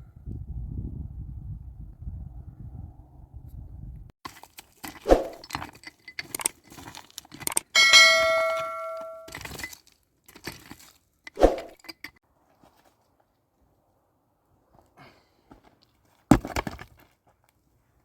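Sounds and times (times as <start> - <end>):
metal cookware clinking: 7.7 - 9.3
metal ringing bell-like tone: 7.8 - 9.4.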